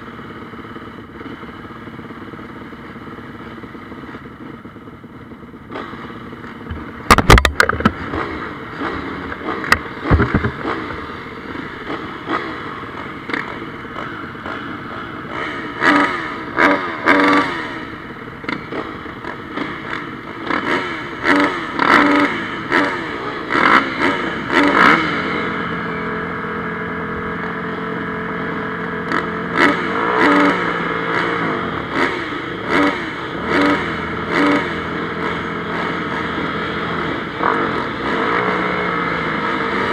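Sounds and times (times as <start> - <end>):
motocross bikes revving: 0.0 - 39.9
sharp knocks: 6.7 - 8.2, 9.7 - 10.6.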